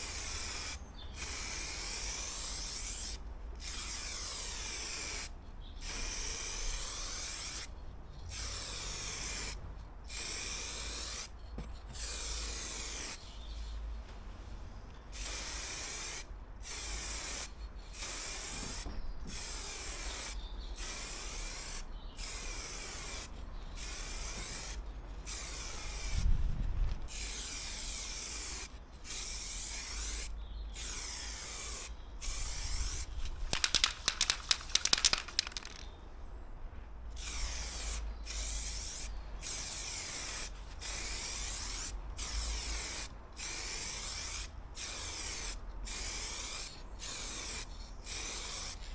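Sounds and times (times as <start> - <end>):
aerosol spray can hissing: 0.0 - 7.7, 8.3 - 11.3, 12.0 - 13.2, 15.2 - 26.2, 27.1 - 35.8, 37.2 - 48.9
sharp rattling clicks: 33.4 - 35.9.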